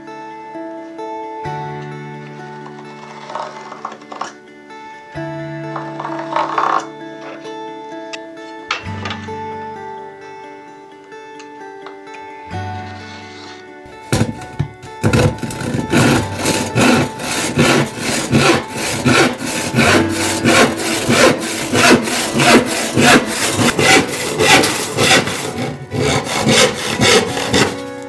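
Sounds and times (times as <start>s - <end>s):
scroll saw cutting wood: 2.7s - 4.4s, 15.0s - 28.0s.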